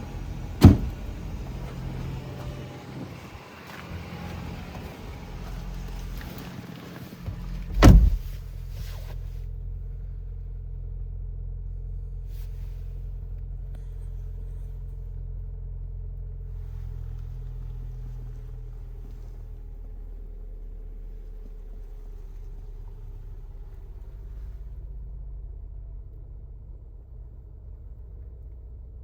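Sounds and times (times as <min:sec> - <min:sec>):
car engine idling: 0:00.0 - 0:29.0
loud thump: 0:00.6 - 0:02.6, 0:07.7 - 0:08.4.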